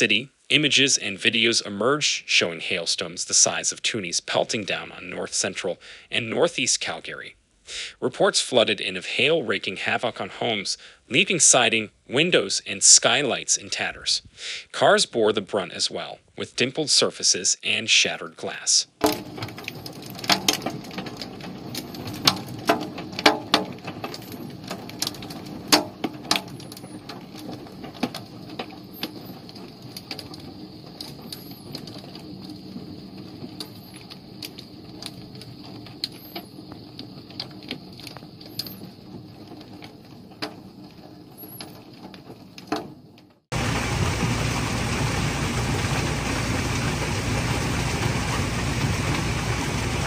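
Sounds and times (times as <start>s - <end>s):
hailstones striking hard surfaces: 19.0s - 50.0s
loud steady noise: 43.5s - 50.0s.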